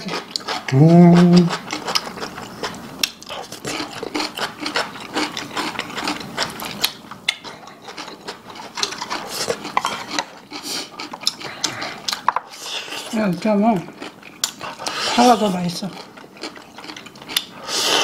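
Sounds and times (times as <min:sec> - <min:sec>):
chewing and crunching: 0:00.0 - 0:18.0.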